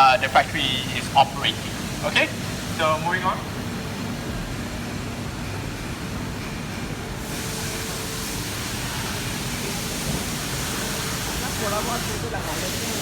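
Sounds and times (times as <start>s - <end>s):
background rumble and hiss: 0.0s - 6.4s.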